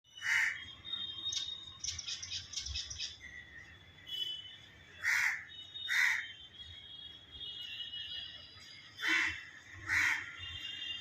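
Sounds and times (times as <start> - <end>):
myna birds calling: 0.1 - 3.9.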